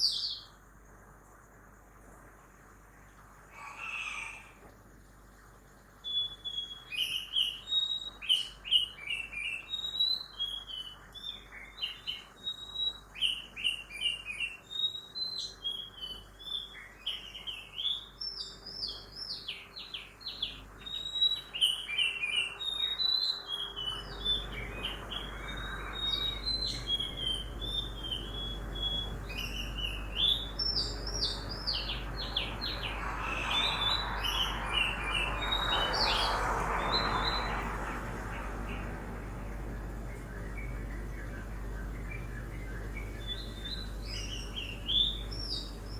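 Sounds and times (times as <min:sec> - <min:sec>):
low rumble of road traffic: 0:00.0 - 0:45.9
birds chirping and singing: 0:06.1 - 0:45.9.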